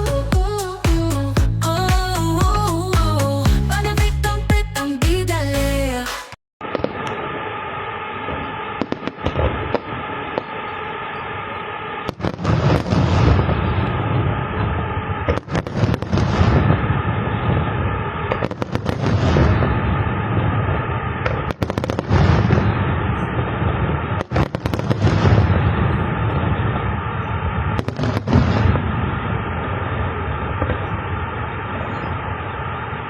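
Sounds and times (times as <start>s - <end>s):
fireworks rumble and crackle: 6.6s - 33.0s
sharp firework cracks: 6.6s - 33.0s.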